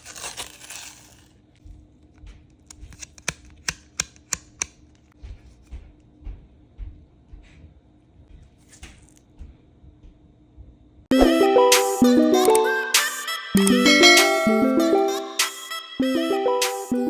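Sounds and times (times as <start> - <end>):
sharp clicks of card packaging: 2.7 - 5.1.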